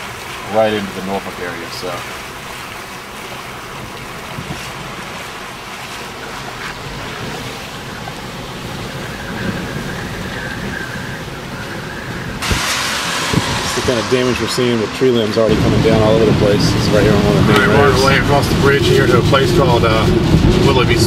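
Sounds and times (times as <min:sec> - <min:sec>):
waves surging against seawall: 0:00.0 - 0:21.0
wind buffeting microphone: 0:03.6 - 0:21.0.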